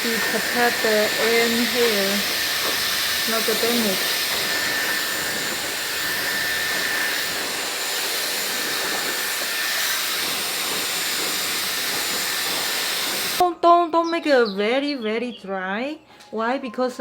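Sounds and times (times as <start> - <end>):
hair dryer blowing air: 0.0 - 13.4.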